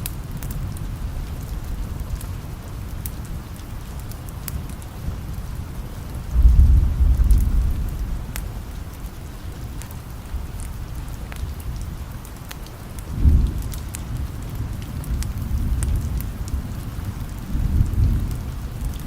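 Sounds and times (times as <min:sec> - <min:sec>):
steady rain: 0:00.0 - 0:19.0
distant thunder rumbling: 0:06.3 - 0:08.8.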